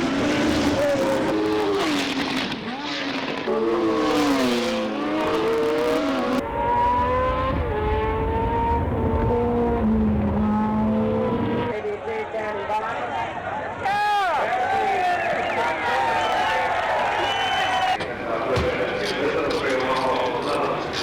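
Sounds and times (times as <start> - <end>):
racing car engines revving: 0.0 - 11.8.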